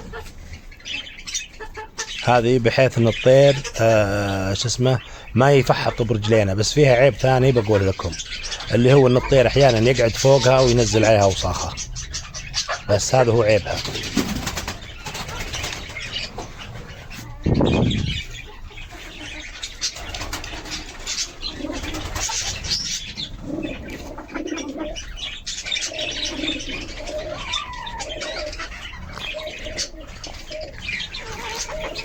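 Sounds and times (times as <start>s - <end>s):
bird chirps: 0.0s - 32.0s
pigeons cooing: 0.0s - 32.0s
loud low rumble: 17.4s - 18.4s.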